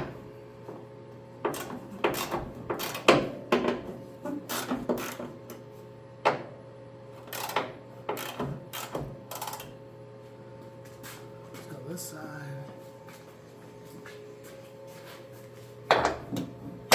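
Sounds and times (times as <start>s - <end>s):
wrench clicking and clanking: 1.5s - 3.7s, 4.5s - 5.3s, 7.2s - 9.7s.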